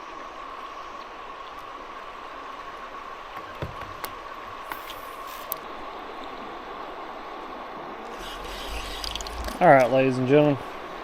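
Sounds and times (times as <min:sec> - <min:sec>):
faint steady hum: 0:00.0 - 0:11.0
river water rushing: 0:05.9 - 0:11.0.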